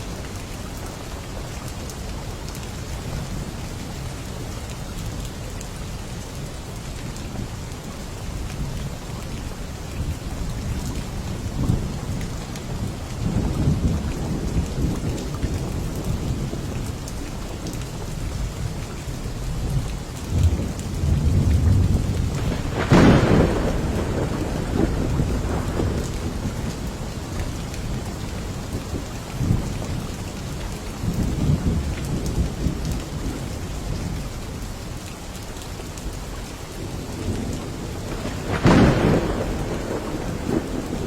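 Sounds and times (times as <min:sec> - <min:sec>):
steady rain falling: 0:00.0 - 0:41.0
low thunder rumbling: 0:10.6 - 0:17.0, 0:18.6 - 0:34.6, 0:36.8 - 0:41.0
sharp thunderclap: 0:20.3 - 0:27.1, 0:37.4 - 0:41.0.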